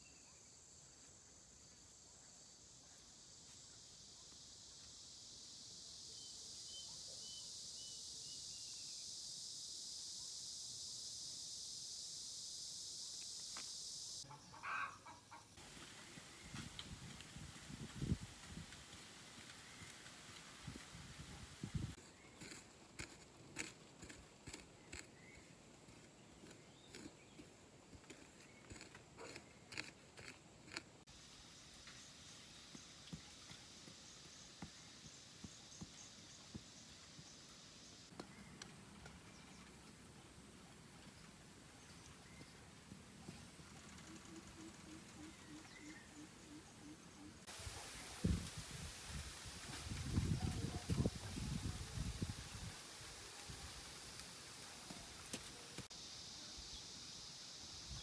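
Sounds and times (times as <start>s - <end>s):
high-pitched insect chorus: 0.4s - 15.2s, 55.5s - 58.0s.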